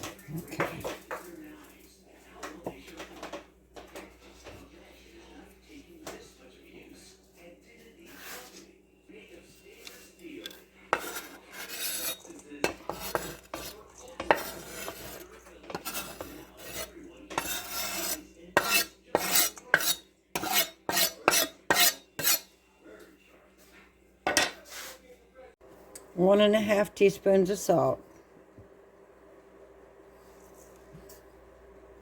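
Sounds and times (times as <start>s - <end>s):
utensil scraping dishware: 9.8s - 22.5s, 24.3s - 25.0s.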